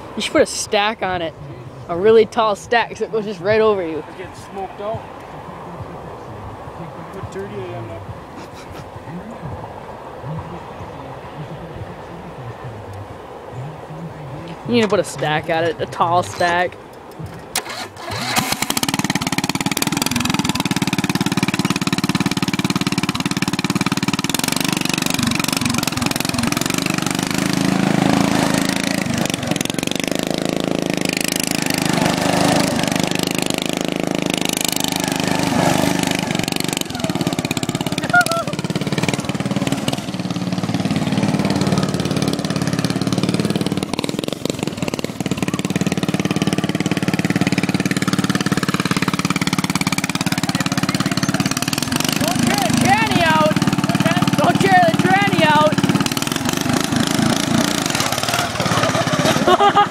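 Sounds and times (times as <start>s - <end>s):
lawnmower engine revving: 14.5s - 59.9s.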